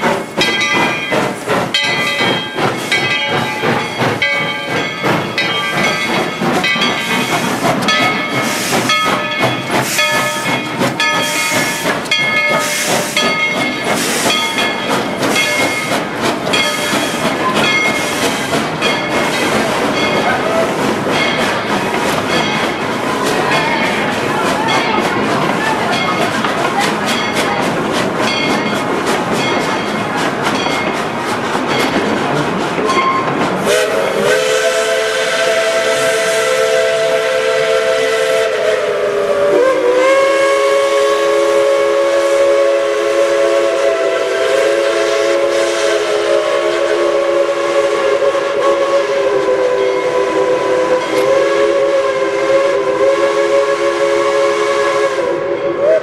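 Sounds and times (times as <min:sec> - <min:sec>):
train clattering: 0:00.0 - 0:56.0
steam locomotive whistle: 0:07.1 - 0:18.6, 0:32.9 - 0:56.0.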